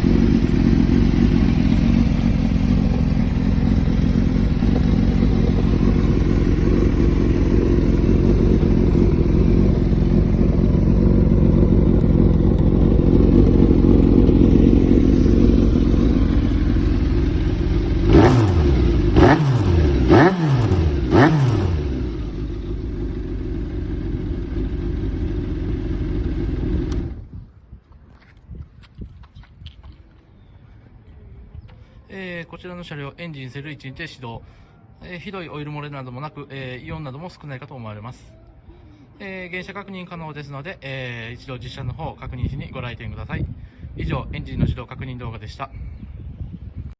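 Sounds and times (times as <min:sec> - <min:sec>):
motorcycle engine idling and revving: 0:00.0 - 0:27.7.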